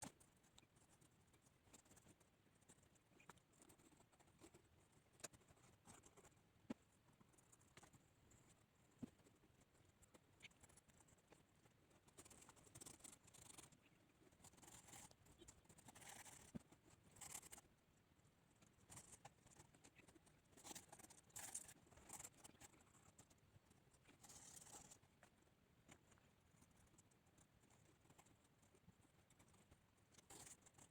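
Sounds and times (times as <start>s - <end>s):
pencil scratching on paper: 12.1s - 16.6s, 17.2s - 17.6s.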